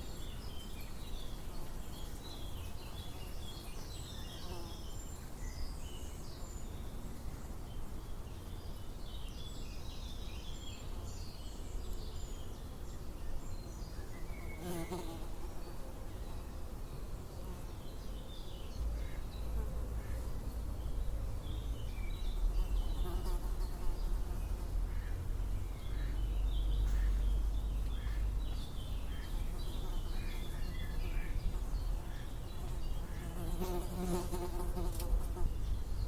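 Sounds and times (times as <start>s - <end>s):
insects buzzing: 21.6s - 36.0s.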